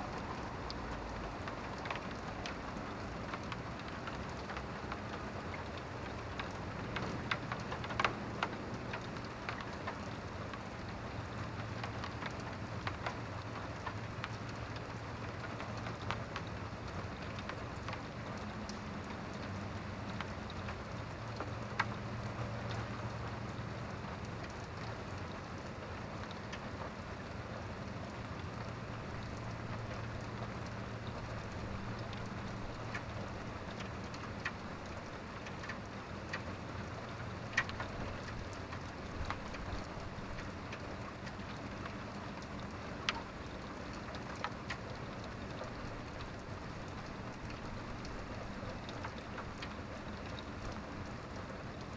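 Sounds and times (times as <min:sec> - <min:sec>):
steady rain falling: 0:00.0 - 0:51.9.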